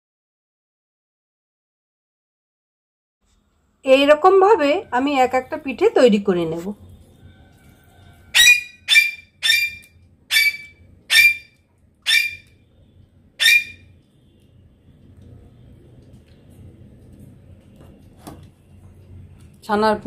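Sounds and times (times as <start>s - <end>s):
bird calling: 8.2s - 12.6s, 13.4s - 13.9s.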